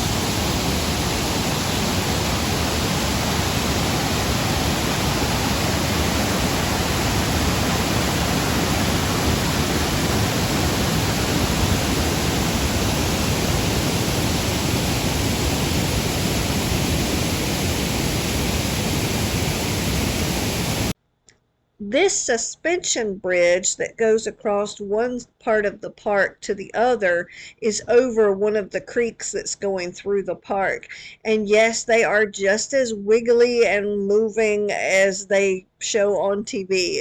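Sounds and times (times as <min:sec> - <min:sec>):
waterfall: 0:00.0 - 0:21.0.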